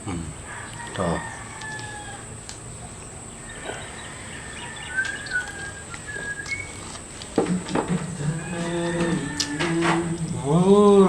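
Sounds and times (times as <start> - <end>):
small birds chirping: 0.1 - 8.2
low animal call: 3.4 - 11.0.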